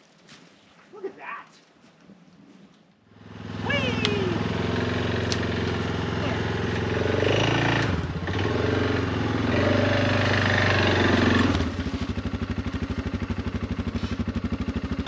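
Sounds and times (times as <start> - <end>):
small vehicle engine running: 3.1 - 15.0.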